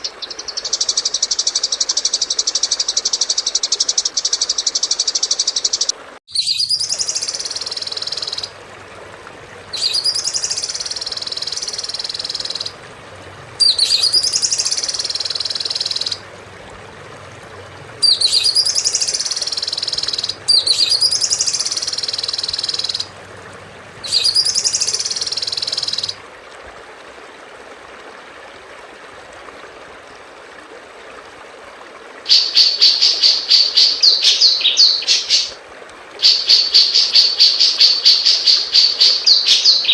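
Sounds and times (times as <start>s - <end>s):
songbird buzzy call: 18.0s - 23.1s, 36.2s - 39.9s.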